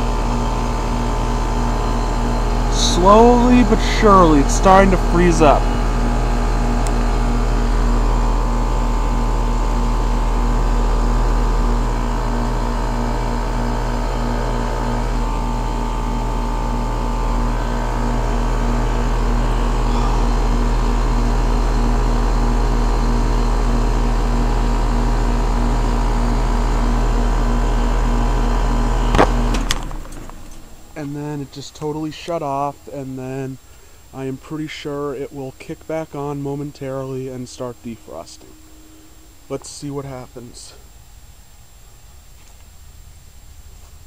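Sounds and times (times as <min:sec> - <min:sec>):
fan whoosh: 0:00.0 - 0:23.2
compressor hum: 0:00.0 - 0:44.0.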